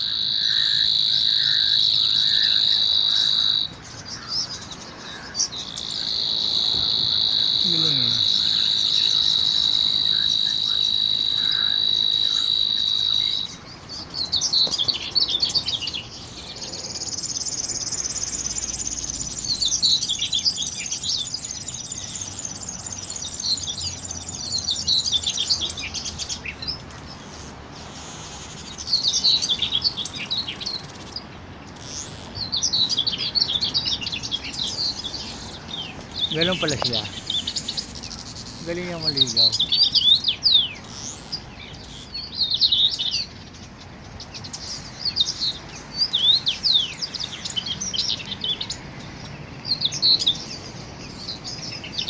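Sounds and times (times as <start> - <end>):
high insect buzz: 0.0 - 4.3, 5.0 - 13.6
high insect drone: 0.0 - 40.0
small birds chirping: 0.0 - 52.0.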